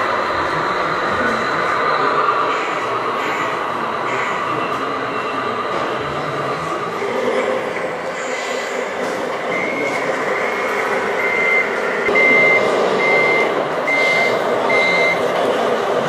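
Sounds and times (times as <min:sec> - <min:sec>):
steady background noise: 0:00.0 - 0:16.0
vehicle reversing alarm beeps: 0:09.5 - 0:15.3.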